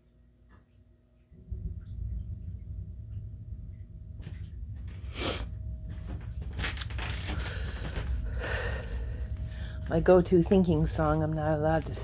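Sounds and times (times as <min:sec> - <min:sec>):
low rubbing rumble: 0:01.2 - 0:12.0
crunching and rustling handling: 0:05.8 - 0:08.4.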